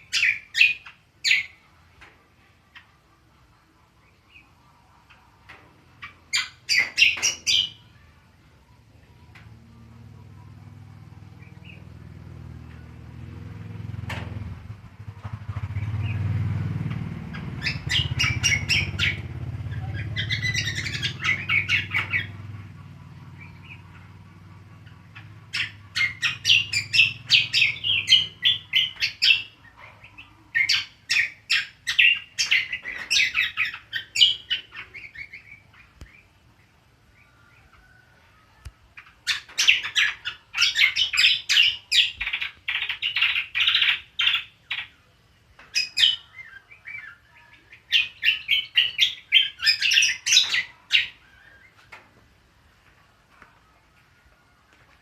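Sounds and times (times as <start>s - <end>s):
bird chattering song: 0.0s - 1.7s, 4.0s - 8.2s, 11.2s - 12.9s, 17.2s - 37.9s, 38.9s - 52.0s.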